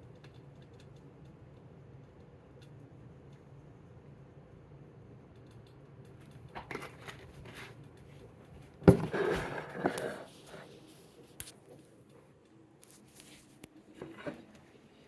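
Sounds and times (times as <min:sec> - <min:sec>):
crinkling and rustling: 0:06.1 - 0:14.9.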